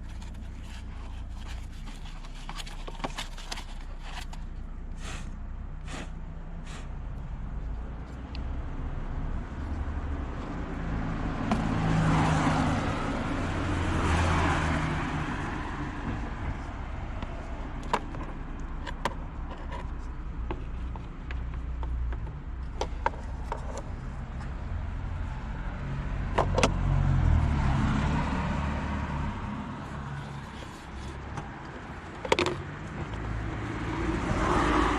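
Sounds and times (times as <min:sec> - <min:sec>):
road traffic rumble: 0:00.0 - 0:34.9.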